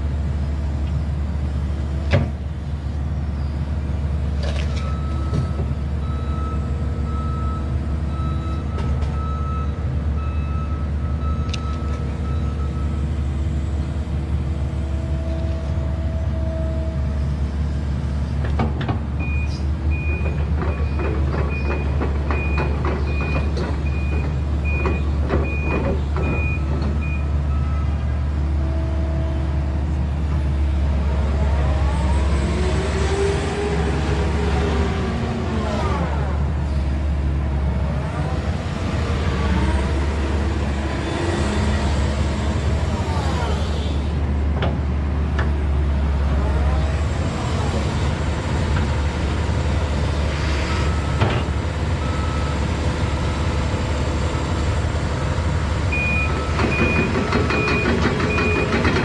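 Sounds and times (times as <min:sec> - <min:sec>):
excavator diesel engine running: 0:00.0 - 0:59.0
clanking tracks: 0:55.2 - 0:59.0.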